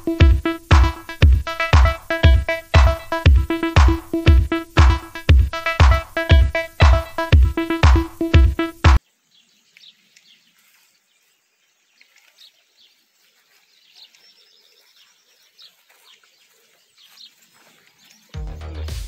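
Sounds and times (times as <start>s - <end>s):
music: 0.0s - 9.0s, 18.4s - 19.0s
faint birdsong chirps: 9.0s - 18.4s.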